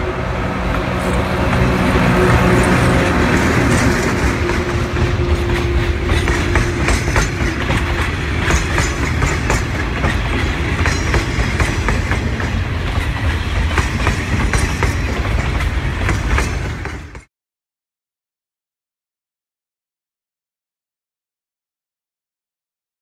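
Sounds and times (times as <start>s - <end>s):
train wheels rumbling: 0.0s - 17.3s
wheels clacking on rails: 0.0s - 17.3s.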